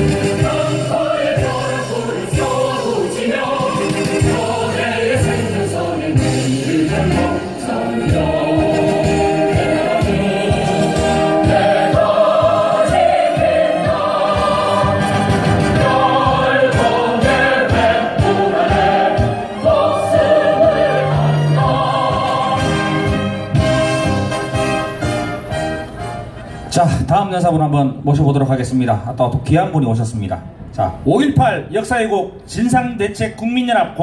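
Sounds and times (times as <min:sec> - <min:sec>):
recorded choir singing: 0:00.0 - 0:24.1.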